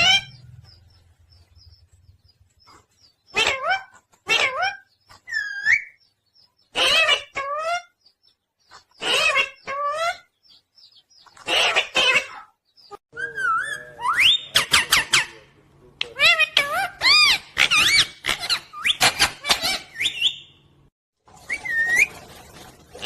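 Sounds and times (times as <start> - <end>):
parrot squawking: 0.0 - 0.4, 3.3 - 6.0, 6.7 - 8.0, 9.0 - 10.3, 11.4 - 20.5.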